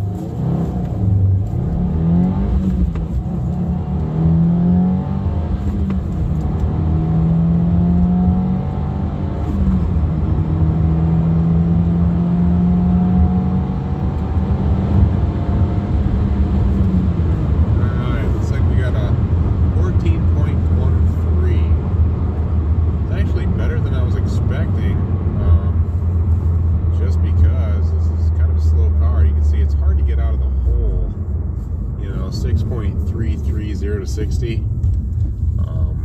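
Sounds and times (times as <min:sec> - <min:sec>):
car engine accelerating through gears: 0:00.0 - 0:36.0.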